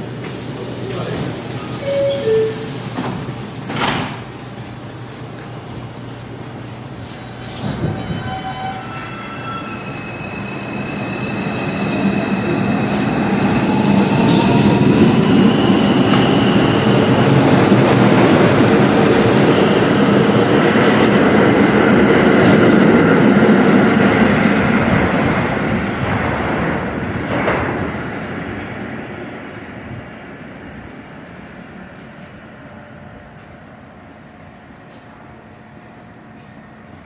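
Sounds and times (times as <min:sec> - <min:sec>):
subway train rumbling past: 0:00.0 - 0:37.0
wheel squeal: 0:07.6 - 0:11.6.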